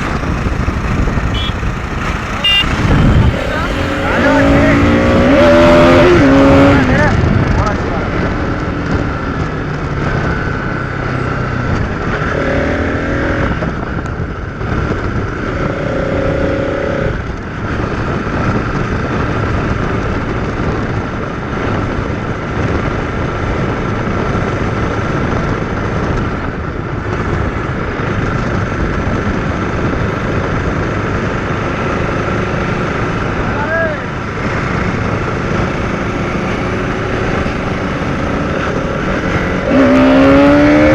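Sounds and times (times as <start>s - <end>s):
short pitched sounds: 0.0s - 6.7s
motorcycle running: 0.0s - 40.9s
wind and road noise: 0.0s - 40.9s.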